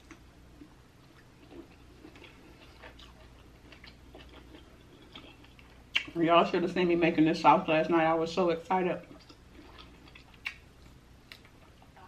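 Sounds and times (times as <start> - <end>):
wet chewing mouth smacks: 1.2 - 6.2, 9.2 - 11.5.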